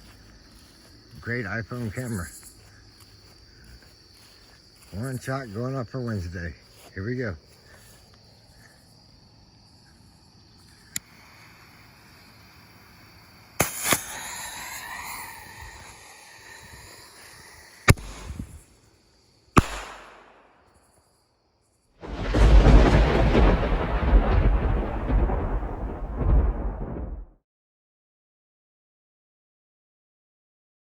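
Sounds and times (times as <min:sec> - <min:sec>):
crickets chirping: 0:00.0 - 0:26.6
hissing firework trail: 0:10.8 - 0:20.6
firework cracks: 0:13.5 - 0:18.8, 0:19.6 - 0:20.8, 0:22.0 - 0:27.1
rumbling firework rush: 0:13.5 - 0:18.8, 0:22.0 - 0:27.4
firework bang: 0:13.6 - 0:16.1, 0:17.8 - 0:18.6, 0:19.6 - 0:20.6, 0:22.0 - 0:27.3.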